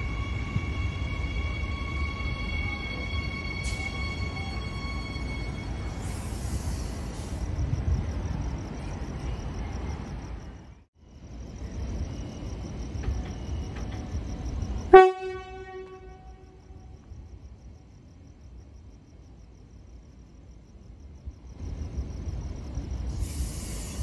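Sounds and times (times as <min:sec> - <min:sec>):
train horn toot: 0:00.0 - 0:05.9, 0:14.9 - 0:16.8
electric train rumbling past: 0:00.0 - 0:24.0.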